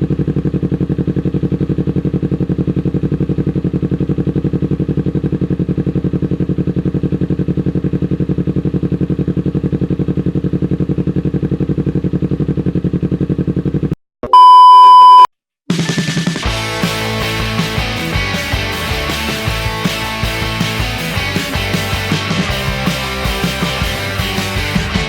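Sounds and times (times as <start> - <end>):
motorcycle engine idling: 0.0 - 13.9
loud steady beep tone: 14.2 - 15.3
music: 15.7 - 25.0.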